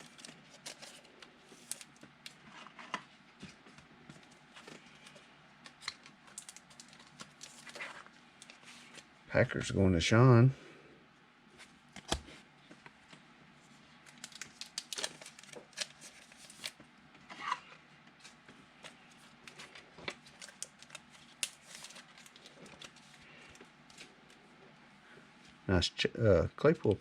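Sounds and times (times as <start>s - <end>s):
cards and wrappers crinkling: 0.0s - 2.6s, 4.6s - 9.0s, 14.0s - 16.8s, 18.2s - 24.4s.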